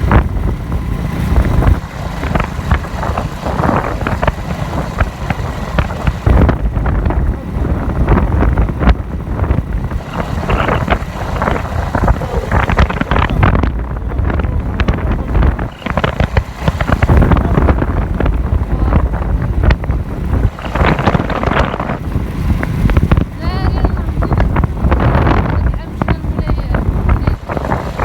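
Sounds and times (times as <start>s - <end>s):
wind buffeting microphone: 0.0s - 28.0s
crackling: 9.8s - 22.0s.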